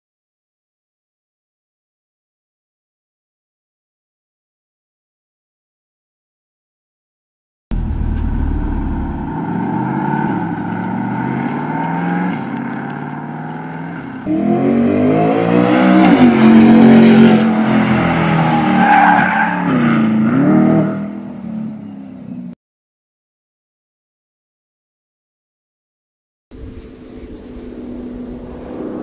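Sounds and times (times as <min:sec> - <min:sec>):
car engine accelerating: 0:07.7 - 0:22.4.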